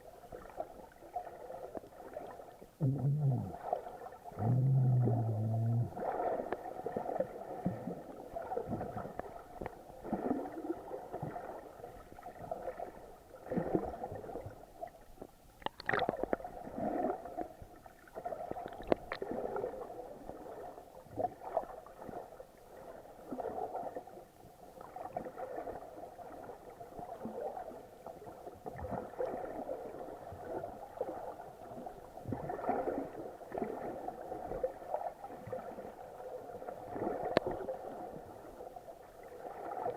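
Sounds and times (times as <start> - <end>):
underwater gurgling and sloshing: 0.0 - 39.9
sharp underwater clicks: 15.6 - 16.4, 18.6 - 19.3.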